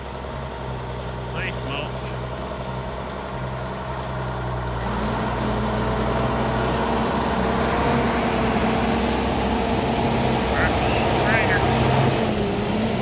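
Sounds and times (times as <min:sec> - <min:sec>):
diesel truck engine running: 0:00.4 - 0:13.0
higher hum: 0:10.3 - 0:12.1.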